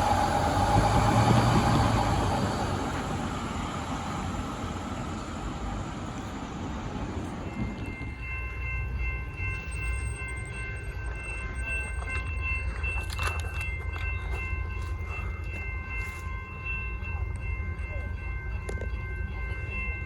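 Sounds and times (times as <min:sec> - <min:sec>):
low rumble of traffic: 0:00.0 - 0:11.0
level crossing bells ringing: 0:07.2 - 0:20.0.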